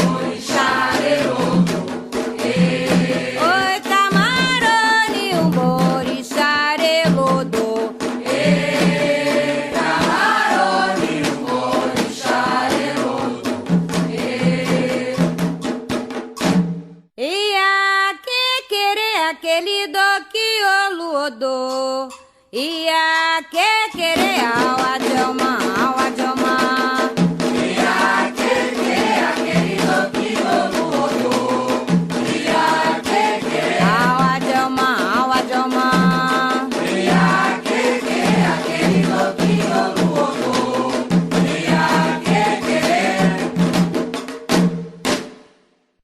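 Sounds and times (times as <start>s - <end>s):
group singing a chant: 0.0s - 6.2s, 7.0s - 15.5s, 24.4s - 44.0s
drums beating a steady rhythm: 0.0s - 17.2s, 23.2s - 45.6s.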